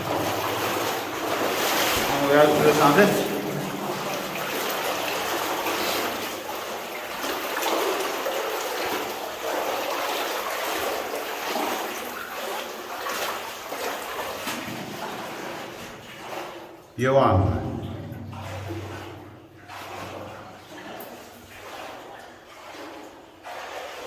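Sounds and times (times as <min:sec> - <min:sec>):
stream water rushing: 0:00.0 - 0:11.6.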